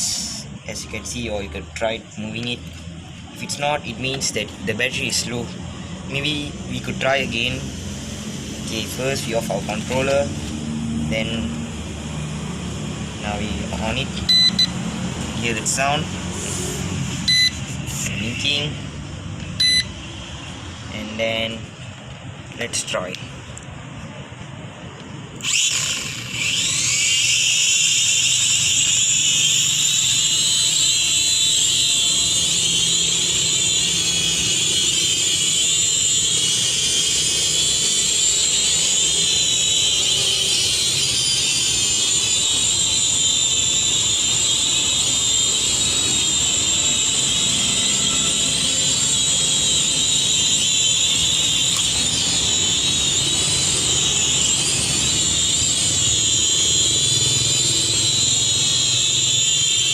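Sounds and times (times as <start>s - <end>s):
quadcopter motors whining: 0.0s - 21.5s, 25.3s - 59.9s.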